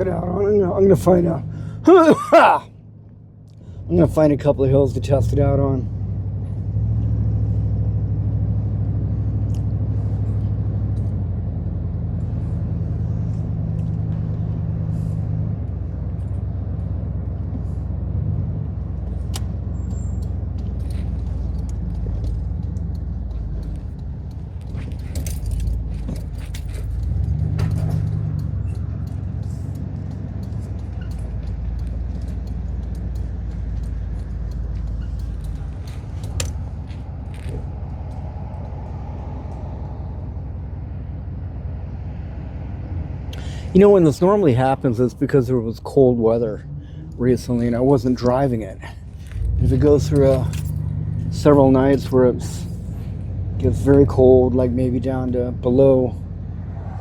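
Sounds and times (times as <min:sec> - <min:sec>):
engine and road rumble in car: 0:00.0 - 0:57.0
light clicks and rattles: 0:18.9 - 0:39.7, 0:47.1 - 0:53.2.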